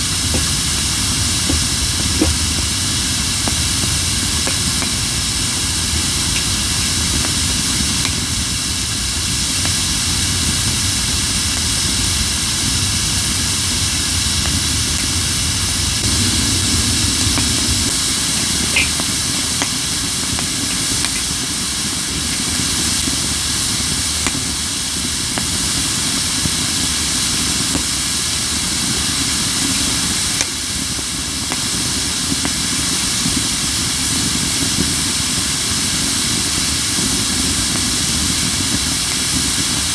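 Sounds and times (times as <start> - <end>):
firewood burning with hiss: 0.0 - 39.9
low rumble: 15.6 - 19.4.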